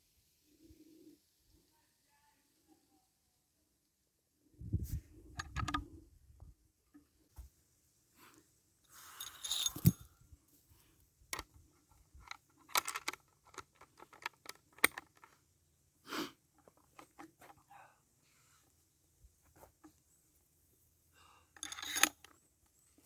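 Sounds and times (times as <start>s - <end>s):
clicks and knocks of small objects: 12.2s - 15.4s, 16.6s - 17.6s, 21.6s - 22.4s.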